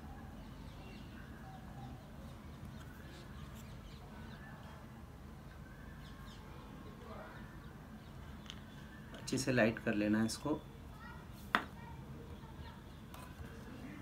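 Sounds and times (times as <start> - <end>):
faint bird chirps: 0.0 - 11.2.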